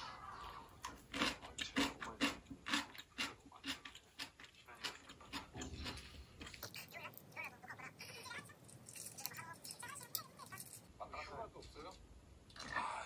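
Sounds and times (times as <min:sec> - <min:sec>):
crunchy chewing: 0:00.4 - 0:10.9.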